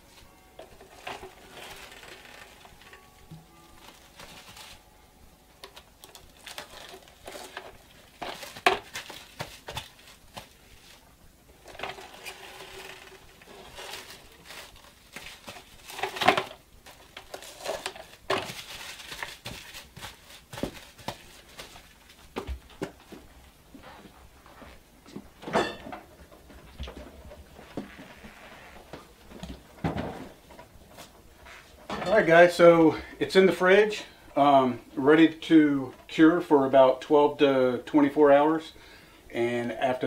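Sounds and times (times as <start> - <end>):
cling wrap crinkling: 0.1 - 5.0, 5.6 - 22.4.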